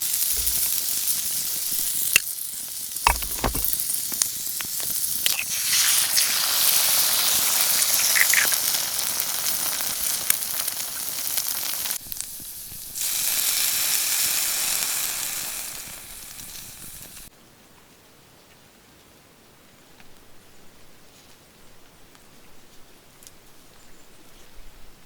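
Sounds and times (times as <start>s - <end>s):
food sizzling in frying: 0.0s - 17.3s.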